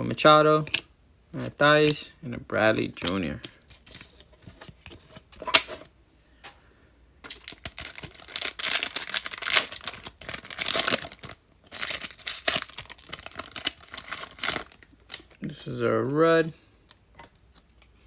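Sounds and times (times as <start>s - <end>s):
wrapper tearing and crinkling: 7.3s - 15.4s.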